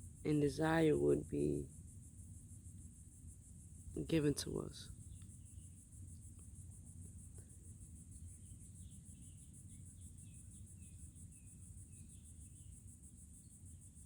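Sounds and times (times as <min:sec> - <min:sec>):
crickets trilling: 0:00.0 - 0:14.0
short insect chirps: 0:04.8 - 0:14.0.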